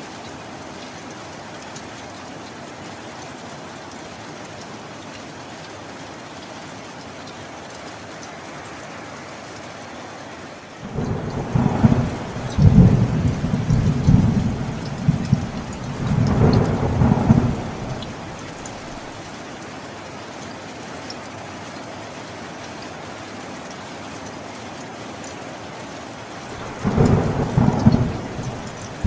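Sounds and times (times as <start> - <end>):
steady rain: 0.0 - 29.0
thunder rolling: 10.8 - 19.1, 26.5 - 29.0.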